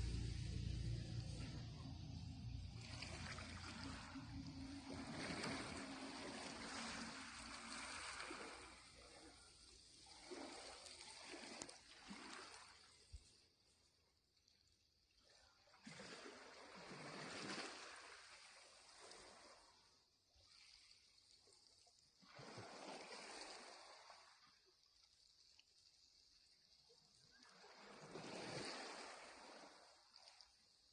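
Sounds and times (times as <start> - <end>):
low rumble: 0.0 - 7.6
water washing in hissing surges: 0.0 - 13.2.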